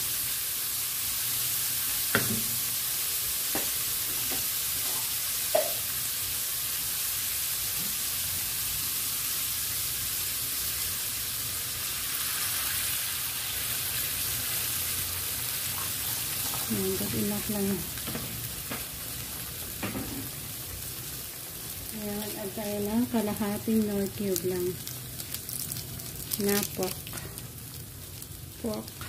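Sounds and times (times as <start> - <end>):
meat sizzling in a frying pan: 0.0 - 29.0
wooden spatula knocking on pan: 2.1 - 2.6, 3.5 - 4.5, 5.5 - 5.8.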